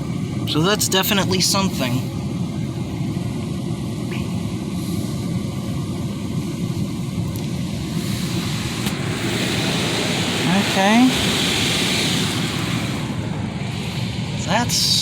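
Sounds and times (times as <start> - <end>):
car wash rumble: 0.0 - 15.0
high hiss: 7.8 - 15.0.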